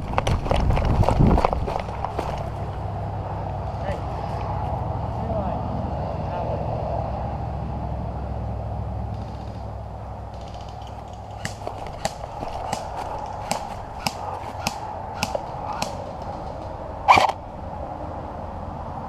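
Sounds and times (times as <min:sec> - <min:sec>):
airsoft rifle shots: 0:11.4 - 0:16.1, 0:17.1 - 0:17.4.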